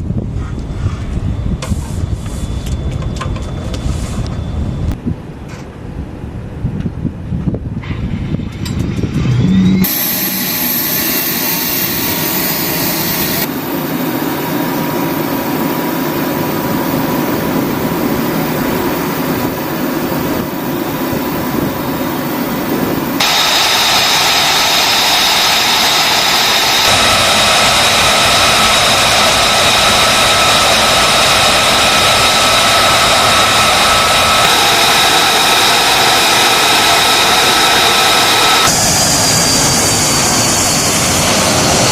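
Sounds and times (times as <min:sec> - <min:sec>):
jet engine turbine whine: 0:00.0 - 0:05.4, 0:07.1 - 0:41.9
loud rushing noise: 0:07.5 - 0:13.7, 0:22.6 - 0:41.9.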